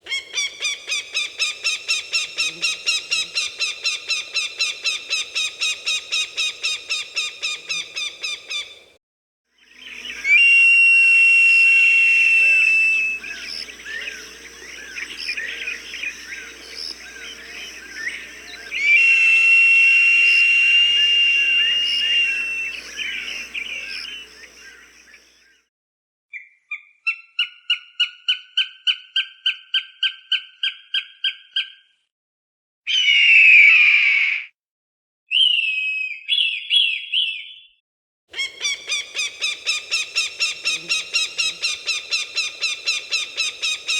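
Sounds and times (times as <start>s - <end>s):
hawk long whistled cries: 0.1s - 8.8s, 9.7s - 25.2s, 38.4s - 43.9s
hawk sharp repeated calls: 0.1s - 8.8s, 38.4s - 43.9s.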